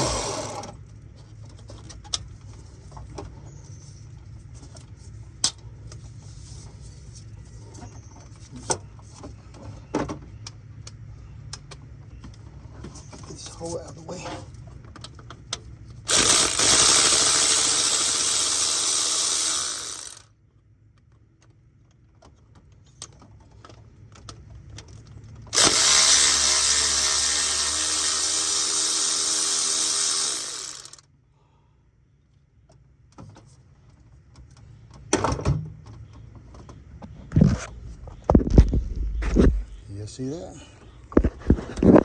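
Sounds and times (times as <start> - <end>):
cordless power drill running: 0.0 - 0.8, 16.1 - 20.3, 25.5 - 31.0.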